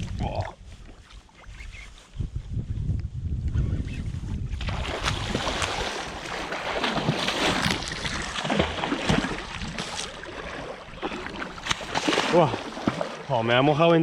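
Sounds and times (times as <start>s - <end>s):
water splashing and sloshing: 4.5s - 14.0s.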